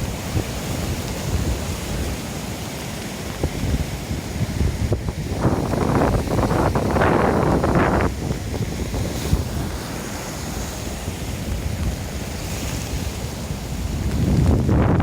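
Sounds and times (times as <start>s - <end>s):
sea waves breaking: 0.0s - 15.0s
wind buffeting microphone: 0.0s - 15.0s.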